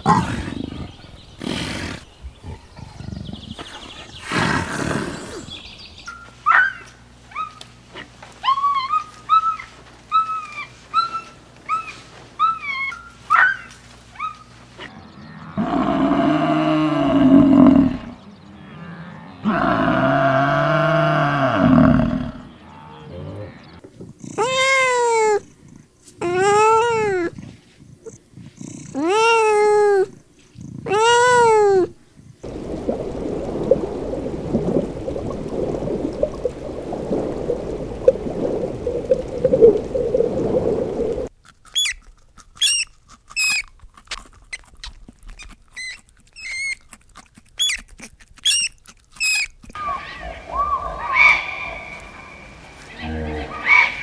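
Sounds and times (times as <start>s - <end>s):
underwater water noise: 31.7s - 41.3s, 49.7s - 54.0s
short high squeaky calls: 41.8s - 42.0s, 42.6s - 43.7s, 48.4s - 52.2s.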